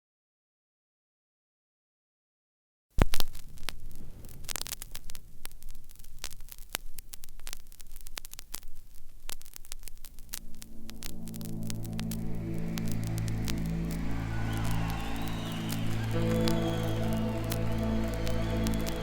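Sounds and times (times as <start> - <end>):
vinyl crackle and pops: 2.9 - 19.0
low hum: 10.4 - 19.0
low held musical chord: 10.6 - 19.0.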